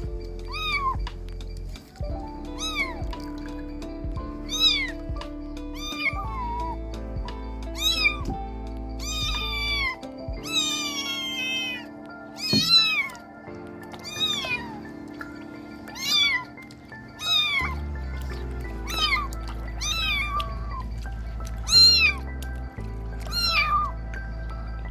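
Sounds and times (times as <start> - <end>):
kittens meowing: 0.4 - 1.6, 2.5 - 3.4, 4.4 - 5.1, 5.7 - 6.9, 7.7 - 14.9, 15.8 - 22.3, 23.1 - 24.2.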